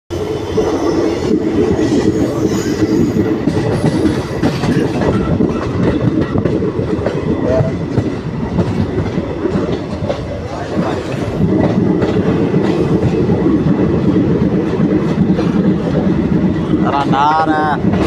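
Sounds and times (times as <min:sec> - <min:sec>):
train rumbling: 0:00.1 - 0:18.0
wheels clattering over rails: 0:00.5 - 0:18.0.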